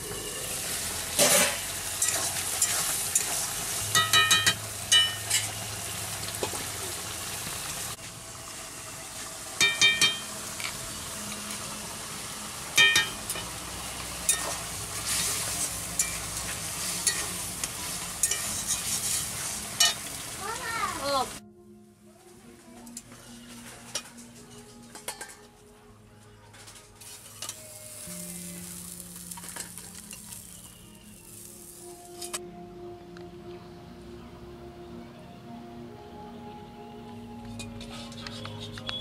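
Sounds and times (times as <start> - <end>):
curry sizzling in a wok: 0.0 - 21.4, 27.0 - 32.4
metal spatula stirring: 1.2 - 5.6, 14.3 - 20.1
steel utensils clinking: 1.2 - 5.6, 9.6 - 10.4, 14.2 - 14.6, 15.6 - 17.4, 18.2 - 20.1, 23.8 - 25.5, 28.8 - 30.5, 31.9 - 32.4.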